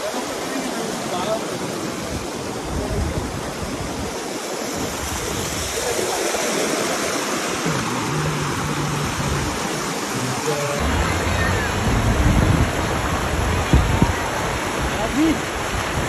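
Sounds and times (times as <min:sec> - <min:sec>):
wind buffeting microphone: 0:02.0 - 0:06.1, 0:07.6 - 0:16.0.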